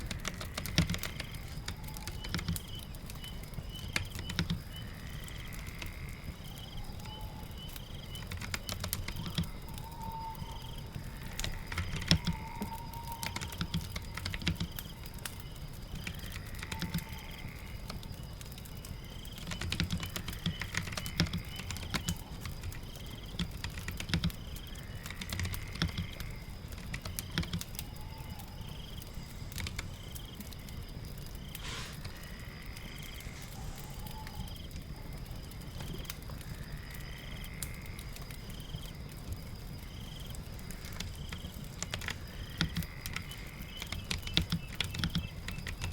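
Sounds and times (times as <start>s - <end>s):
computer keyboard typing: 0.0s - 2.8s, 3.8s - 4.7s, 8.1s - 9.5s, 11.4s - 14.9s, 16.0s - 17.1s, 19.4s - 26.2s, 26.8s - 27.8s, 40.8s - 45.9s
rain patter: 0.0s - 45.9s
rising call: 32.9s - 34.6s.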